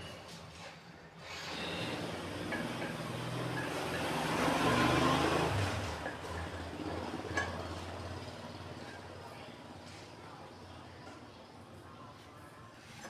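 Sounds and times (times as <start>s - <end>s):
motor vehicle passing by: 2.9s - 6.7s.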